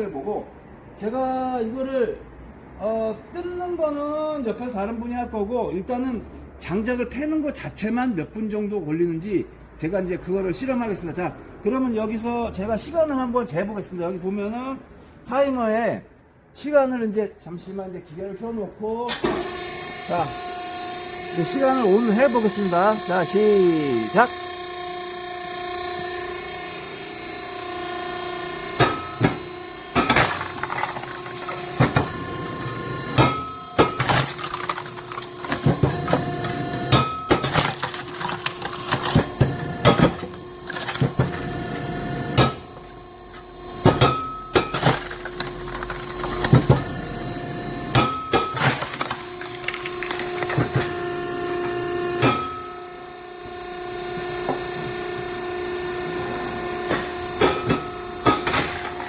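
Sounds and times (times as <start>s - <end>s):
log splitter humming: 20.4s - 51.1s, 56.7s - 59.0s
wood cracking and splintering: 30.0s - 31.9s, 33.9s - 36.2s, 36.9s - 41.2s, 44.6s - 46.8s, 48.4s - 50.8s, 58.4s - 59.0s.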